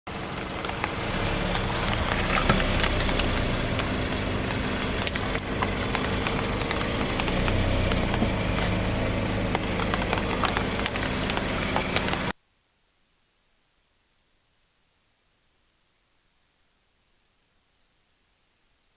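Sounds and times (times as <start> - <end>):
car engine running: 0.1 - 12.3
objects crunching under tyres: 0.1 - 12.3.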